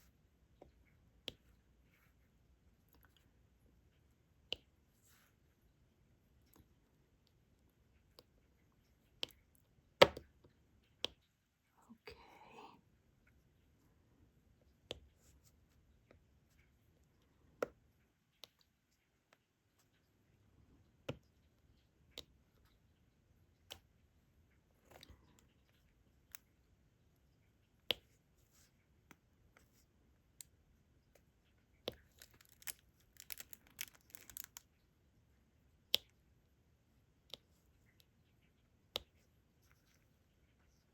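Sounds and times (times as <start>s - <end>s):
small beads rattling: 32.1s - 34.6s.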